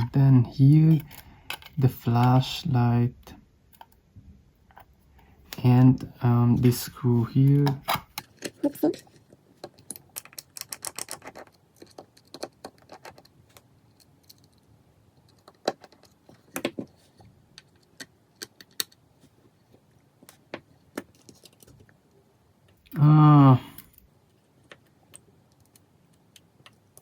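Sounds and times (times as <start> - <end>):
small tools clicking and tapping: 7.6 - 17.0.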